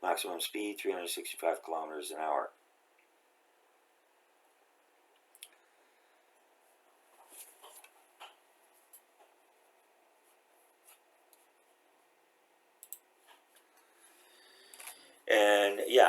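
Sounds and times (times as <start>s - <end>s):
faint rustles: 6.6s - 11.8s.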